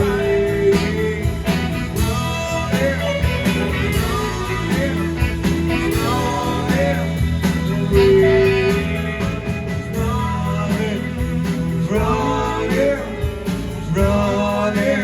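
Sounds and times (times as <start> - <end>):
guitar bending notes: 0.0 - 10.7
rock band playing: 0.0 - 15.0
steady drum beat: 0.0 - 15.0.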